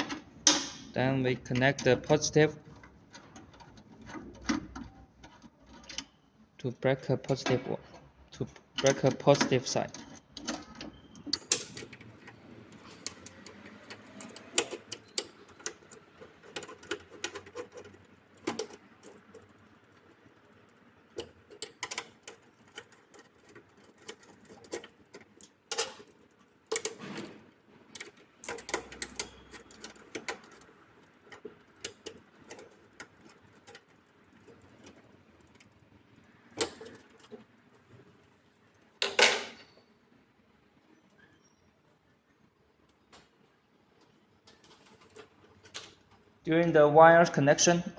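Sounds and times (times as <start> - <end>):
tools clicking and tapping: 7.3 - 27.0, 27.9 - 35.7.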